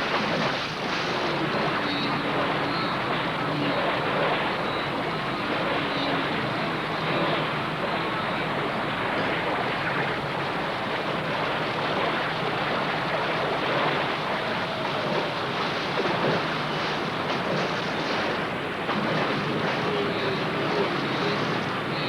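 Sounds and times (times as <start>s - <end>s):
floodwater rushing: 0.0s - 22.0s.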